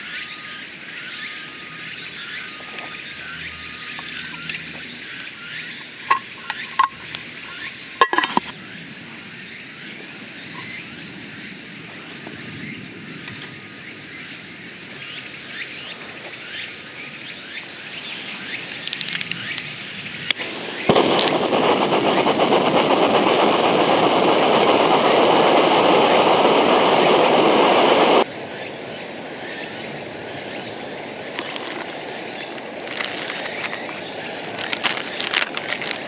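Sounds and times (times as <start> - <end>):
outdoor background hiss: 0.0 - 36.0
loud rushing noise: 20.4 - 28.3.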